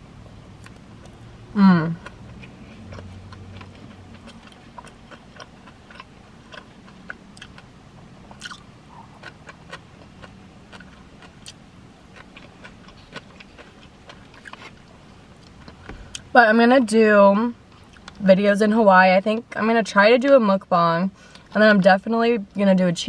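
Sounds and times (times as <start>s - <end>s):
chewing with wet mouth clicks: 2.0s - 7.7s, 8.3s - 16.3s, 17.7s - 18.2s.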